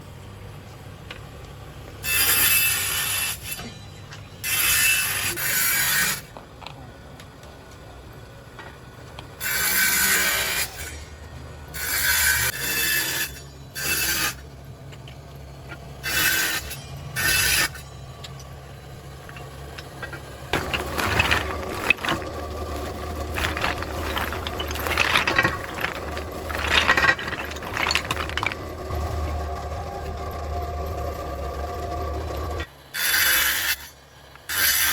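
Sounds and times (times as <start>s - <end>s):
clattering rasping machinery: 9.4s - 34.9s
machine grinding bursts: 20.1s - 32.7s.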